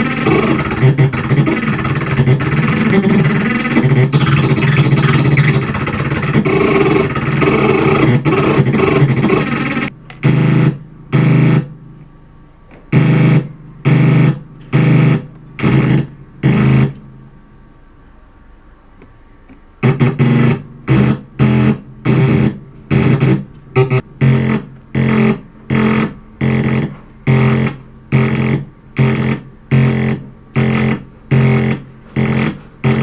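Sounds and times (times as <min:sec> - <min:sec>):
harsh noise synthesizer drone: 0:00.0 - 0:17.7, 0:19.8 - 0:33.0
short synthesizer noise blasts: 0:00.0 - 0:17.7, 0:19.8 - 0:33.0.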